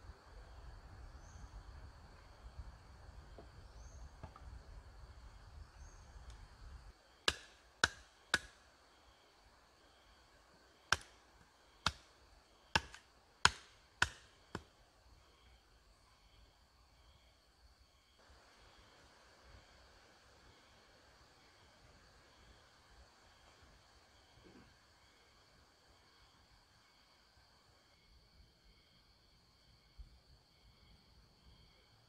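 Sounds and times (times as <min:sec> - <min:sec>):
insect chirping: 0:00.0 - 0:32.0
chopping blows on wood: 0:07.2 - 0:08.6, 0:10.9 - 0:11.2, 0:11.8 - 0:12.1, 0:12.7 - 0:14.7.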